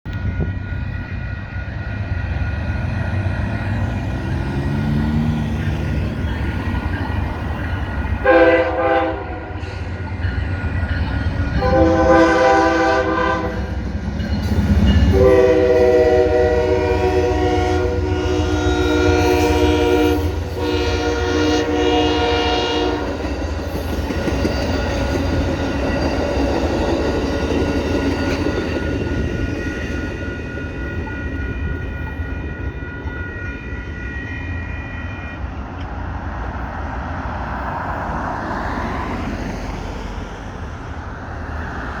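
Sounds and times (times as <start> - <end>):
train rumbling by: 0.0 - 42.0
train horn chord: 8.2 - 9.7, 11.5 - 13.8, 14.8 - 23.3.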